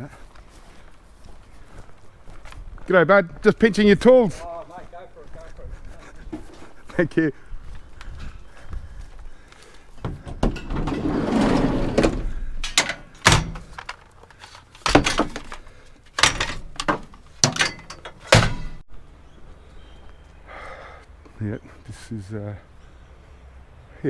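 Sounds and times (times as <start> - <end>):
objects knocking as set down: 10.0 - 18.8
scrap scraping and rummaging: 10.0 - 18.8.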